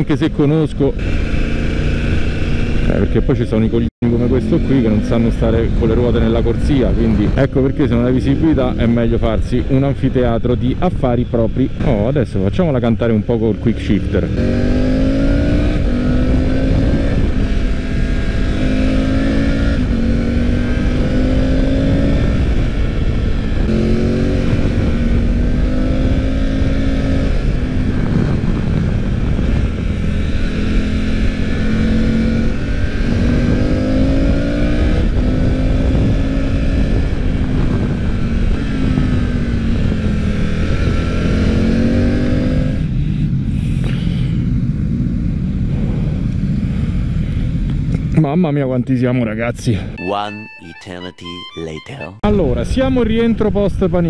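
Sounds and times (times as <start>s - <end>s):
motorcycle engine revving through gears: 0.8s - 9.2s, 13.2s - 43.0s
wind rush: 14.2s - 48.1s.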